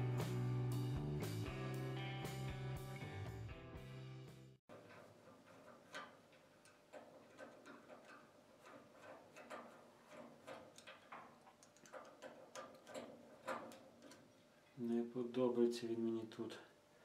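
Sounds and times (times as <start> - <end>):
small stove parts clicking: 4.7 - 14.8.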